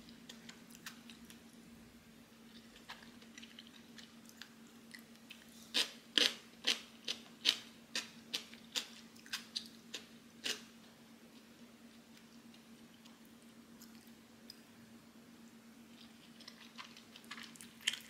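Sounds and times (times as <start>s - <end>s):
person chewing crunchy food: 2.5s - 10.7s, 15.9s - 18.0s.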